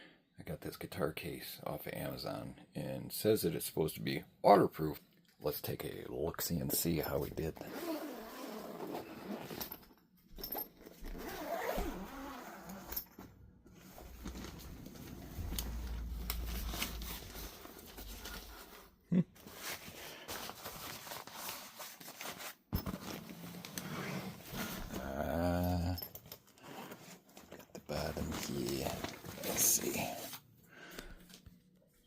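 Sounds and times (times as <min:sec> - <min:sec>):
zipper rasps: 0:07.6 - 0:09.8, 0:11.0 - 0:13.1, 0:22.9 - 0:25.5
rustling: 0:10.4 - 0:25.2.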